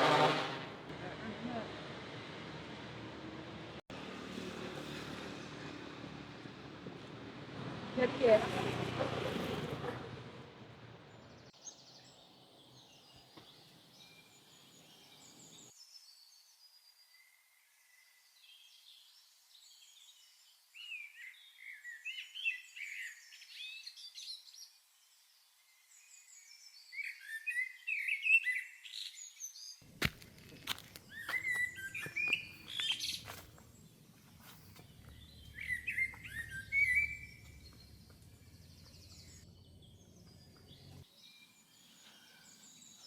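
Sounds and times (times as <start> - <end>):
faint outdoor background noise: 0.7 - 43.0
small birds twittering: 18.6 - 43.0.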